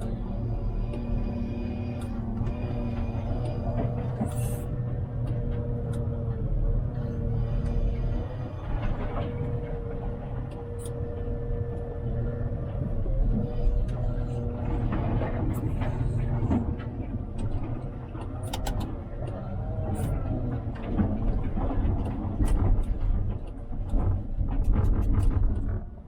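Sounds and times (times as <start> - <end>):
diesel engine rumbling: 0.0 - 26.0.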